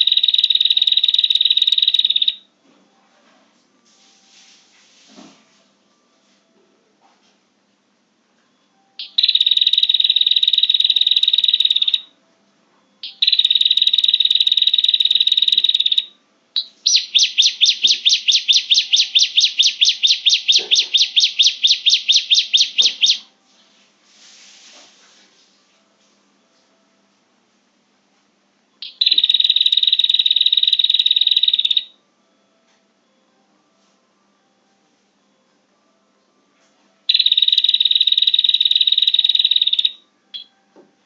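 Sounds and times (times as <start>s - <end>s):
bird buzzy trilling: 0.0s - 2.5s, 9.0s - 12.1s, 13.0s - 23.3s, 28.8s - 31.9s, 37.1s - 40.5s.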